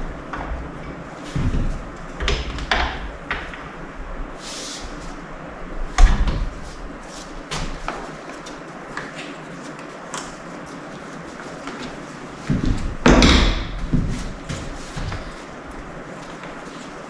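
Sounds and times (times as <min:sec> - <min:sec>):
loud knock: 0:12.5 - 0:14.2.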